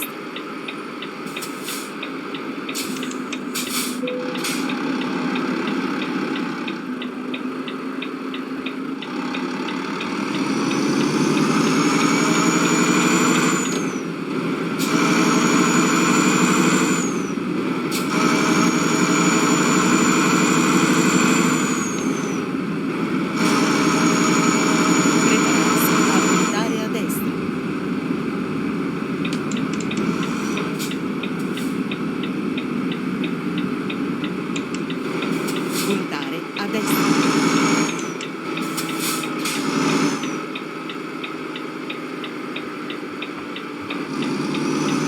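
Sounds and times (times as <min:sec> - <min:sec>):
turn indicator ticking: 0:00.0 - 0:10.2, 0:28.0 - 0:36.6, 0:40.2 - 0:44.3
vehicle engine accelerating: 0:00.0 - 0:45.0.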